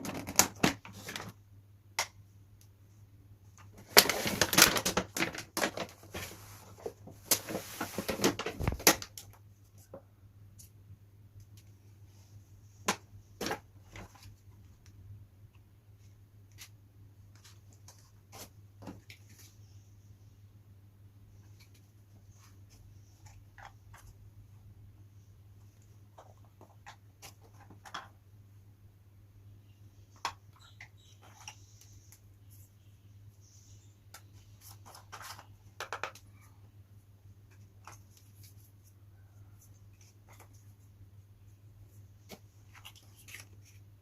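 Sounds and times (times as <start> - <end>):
packaging rustling: 3.8 - 6.4.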